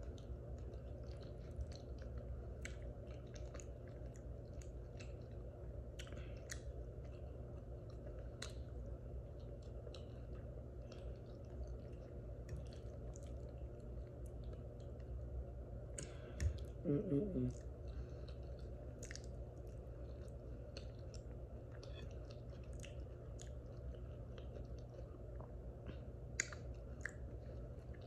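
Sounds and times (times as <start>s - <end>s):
person chewing food: 0.0s - 28.0s
steady low hum: 0.0s - 28.0s
wet mouth clicks: 26.4s - 27.2s.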